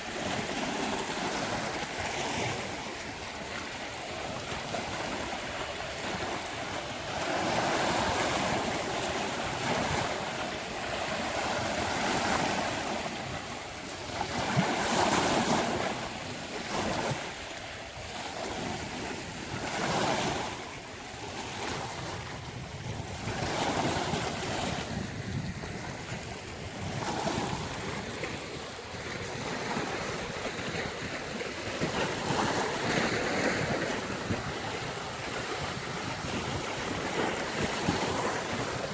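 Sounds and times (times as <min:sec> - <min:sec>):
sea waves breaking: 0:00.0 - 0:38.9
wind noise on microphone: 0:00.0 - 0:38.9.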